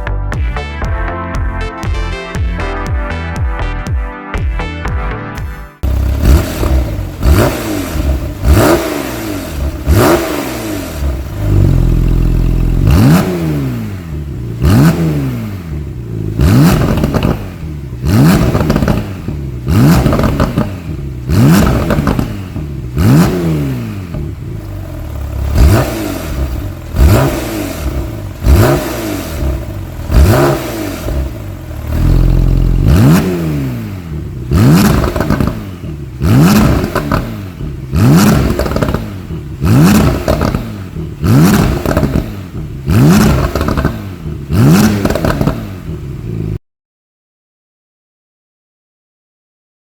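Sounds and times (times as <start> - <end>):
exhaust cracks: 5.8 - 15.0, 16.0 - 46.4
sports car engine revving: 5.8 - 46.6.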